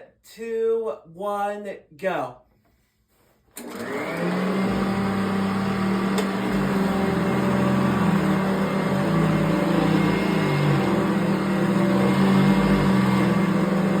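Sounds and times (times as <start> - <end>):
vacuum cleaner motor running: 3.6 - 14.0.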